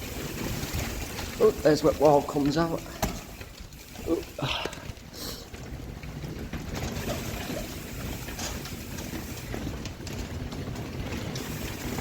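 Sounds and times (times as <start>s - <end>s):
bicycle rolling over rough ground: 0.0s - 12.0s.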